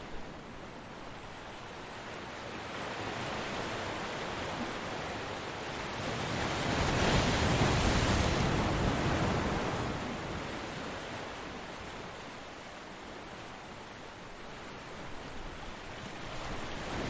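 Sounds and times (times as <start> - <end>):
ocean waves crashing: 5.7 - 11.8, 16.2 - 17.0.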